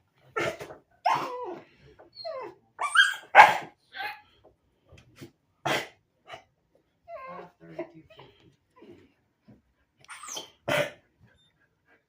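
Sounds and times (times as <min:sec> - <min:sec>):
dog barking and yelping: 0:00.3 - 0:04.4, 0:10.1 - 0:11.0.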